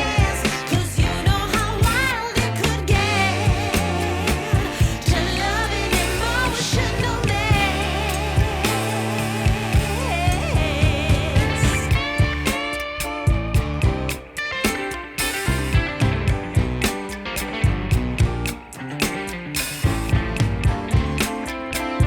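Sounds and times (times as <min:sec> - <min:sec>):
pop music with vocals: 0:00.0 - 0:15.7.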